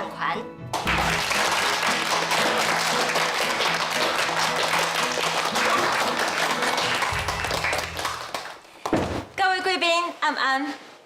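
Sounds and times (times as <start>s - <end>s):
background music: 0.0s - 8.7s
audience applauding: 0.7s - 8.7s.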